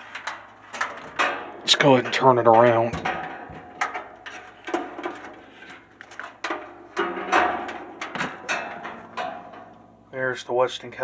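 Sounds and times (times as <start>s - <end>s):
metal fan knocks and clunks: 0.0s - 10.1s.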